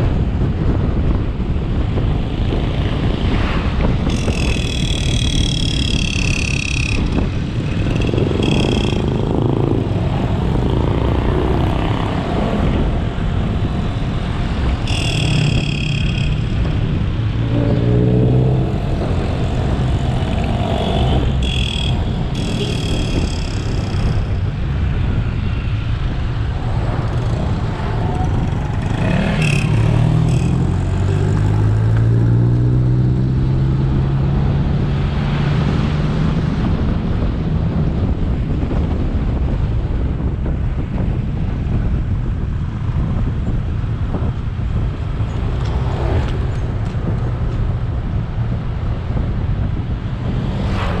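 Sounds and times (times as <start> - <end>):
wind and road noise: 0.0 - 51.0
motorcycle engine: 0.1 - 36.0
brief high-pitched tones: 14.9 - 16.6.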